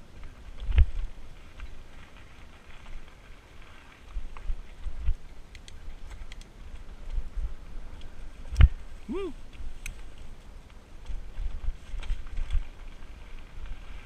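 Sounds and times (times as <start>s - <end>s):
bike rumbling on dirt trail: 0.0s - 14.0s
light clicks and rattles: 0.6s - 7.2s.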